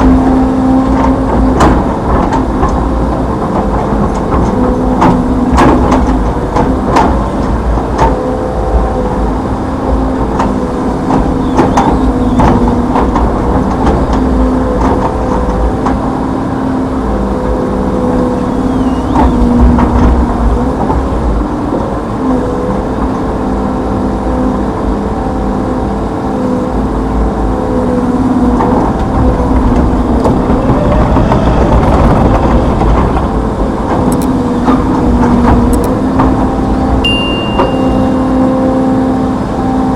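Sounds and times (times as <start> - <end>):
knocks and clanks: 0.0 - 9.2, 9.9 - 16.2, 18.3 - 22.0, 28.4 - 38.7
excavator engine and hydraulics: 0.0 - 39.9.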